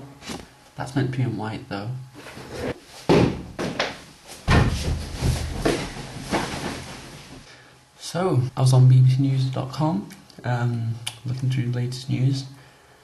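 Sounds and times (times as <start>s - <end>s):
loud knocks and thuds: 3.1s - 7.1s.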